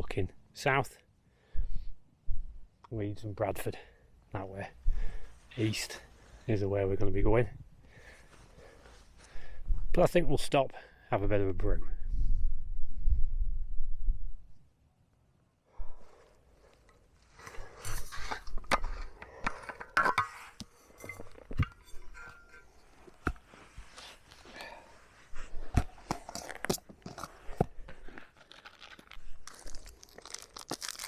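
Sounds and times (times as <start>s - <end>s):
wind rumble on microphone: 11.6s - 14.6s
packaging rustling and crinkling: 23.1s - 31.0s.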